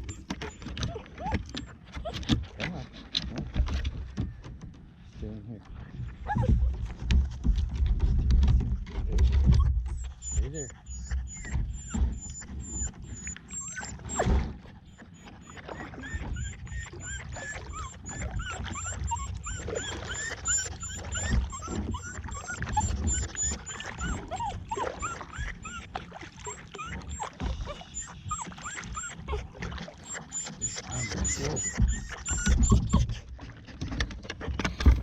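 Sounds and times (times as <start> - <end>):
dog whining: 0.0 - 2.4, 6.2 - 6.6, 9.4 - 33.3
low rumble of water and boat: 0.0 - 35.0.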